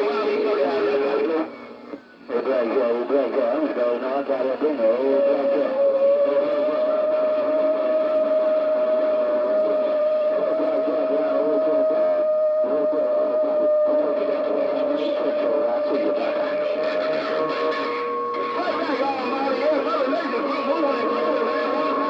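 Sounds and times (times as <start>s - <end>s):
steady radio whistle: 0.0s - 22.0s
garbled warbling radio voices: 14.1s - 22.0s.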